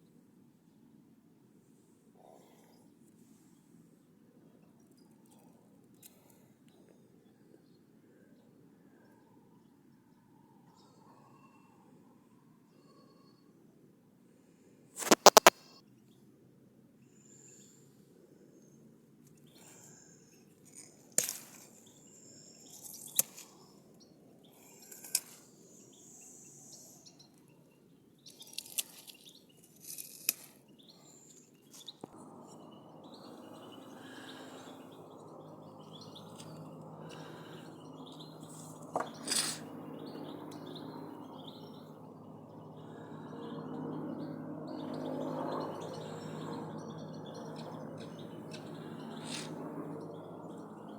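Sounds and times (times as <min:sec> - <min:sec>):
sharp clicks: 0:15.0 - 0:15.6
bird chirping: 0:15.0 - 0:15.8, 0:30.7 - 0:50.9.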